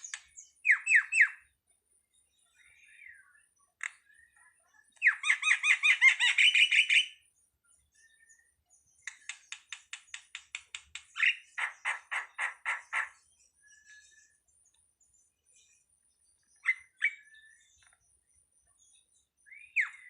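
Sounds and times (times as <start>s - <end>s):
dry clicks of starling: 0.0s - 1.3s, 3.8s - 5.5s, 9.0s - 13.2s, 17.8s - 18.0s
starling calling: 5.0s - 7.2s, 9.0s - 13.2s.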